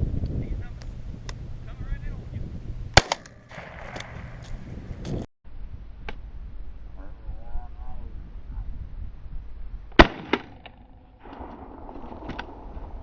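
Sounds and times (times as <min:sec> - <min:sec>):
shotgun blast: 0:03.0 - 0:04.6, 0:10.0 - 0:10.6.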